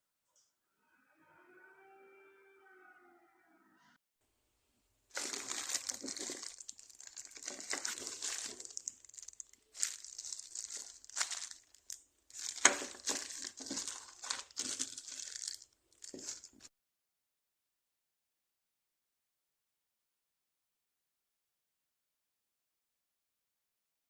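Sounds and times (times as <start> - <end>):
packaging crumpling and crackling: 5.1 - 16.7.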